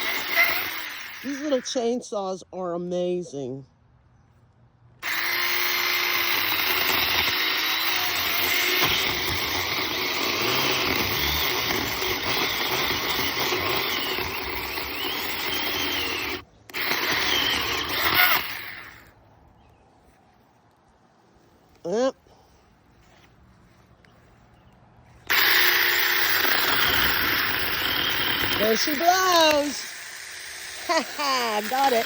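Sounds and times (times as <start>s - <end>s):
chainsaw cutting branch: 0.0s - 1.6s, 5.0s - 19.1s, 25.3s - 32.0s.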